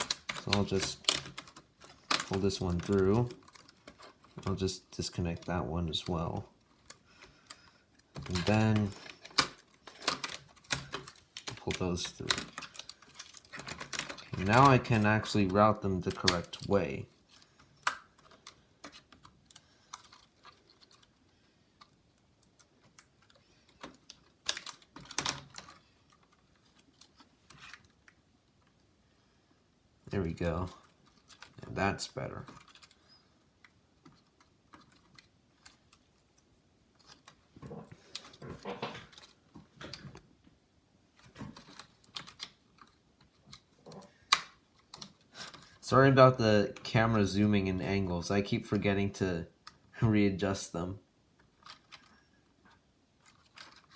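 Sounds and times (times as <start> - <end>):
plastic laptop parts clicking: 0.0 - 4.6, 5.2 - 28.8, 32.4 - 40.3, 41.2 - 45.8, 51.4 - 53.9
small clicks and taps: 0.0 - 4.6, 41.2 - 45.8
rustling: 0.0 - 28.8.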